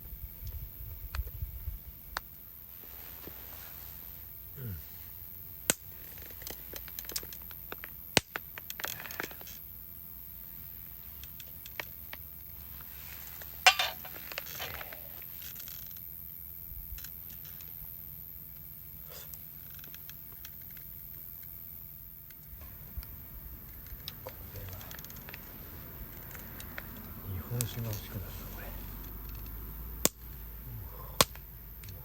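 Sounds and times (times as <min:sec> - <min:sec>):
cooking utensils clinking: 0:13.7 - 0:14.2.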